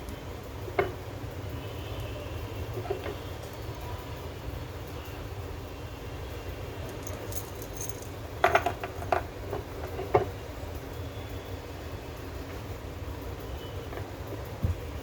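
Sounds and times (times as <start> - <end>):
hard parts clacking and rattling: 6.8 - 10.4.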